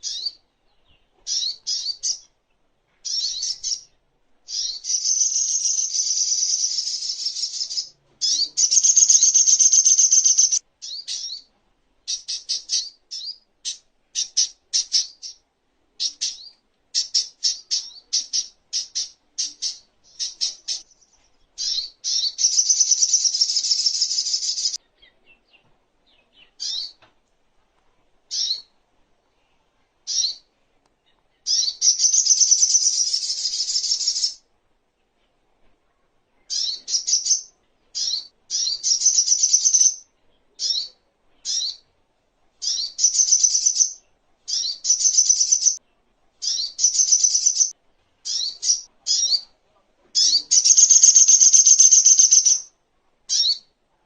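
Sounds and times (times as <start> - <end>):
bird singing high fast trills: 3.1 - 3.9, 4.5 - 11.5, 16.0 - 24.8, 31.5 - 34.4, 36.5 - 40.0, 42.6 - 45.8, 46.4 - 47.7, 50.2 - 52.7.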